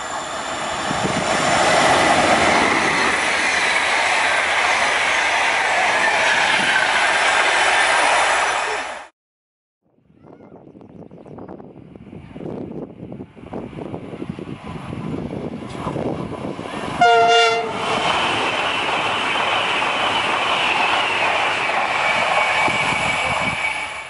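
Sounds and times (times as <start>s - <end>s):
train rumble: 0.0s - 9.1s, 11.4s - 24.0s
train rushing past: 0.0s - 9.1s, 12.1s - 24.0s
multi-tone train horn: 17.0s - 18.0s.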